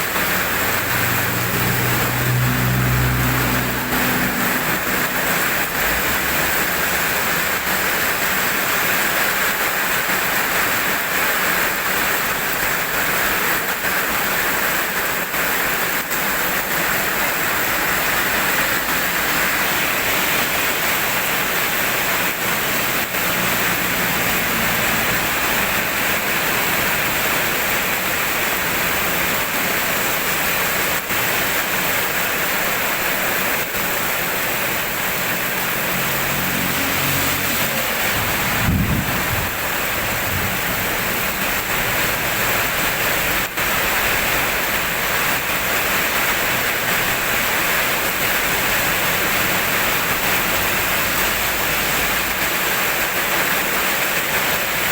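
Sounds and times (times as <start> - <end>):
rain falling steadily: 0.0 - 54.9
low rumble: 37.8 - 43.4.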